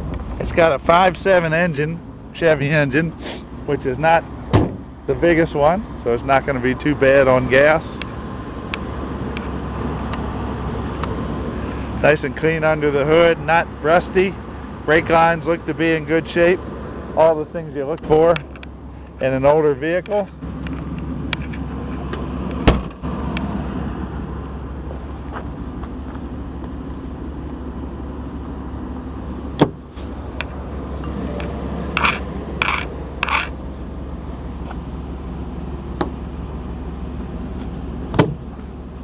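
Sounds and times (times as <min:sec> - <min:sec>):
car engine idling: 0:00.0 - 0:39.0
sharp knocks: 0:38.1 - 0:38.4.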